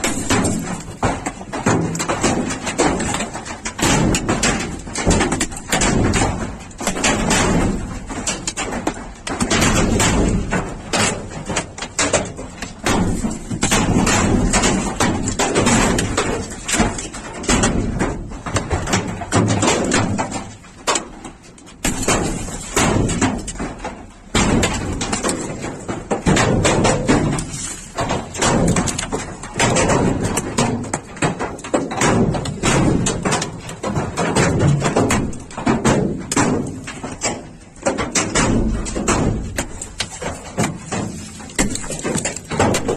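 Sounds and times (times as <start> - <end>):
hailstones striking hard surfaces: 0.0 - 42.9.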